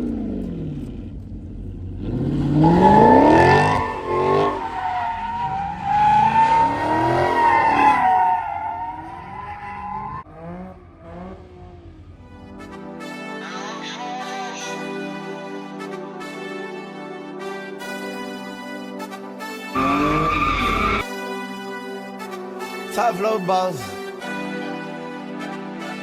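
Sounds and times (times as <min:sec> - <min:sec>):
car engine revving: 0:00.0 - 0:12.8, 0:19.8 - 0:21.0
tires squealing: 0:02.0 - 0:12.7, 0:19.6 - 0:21.1.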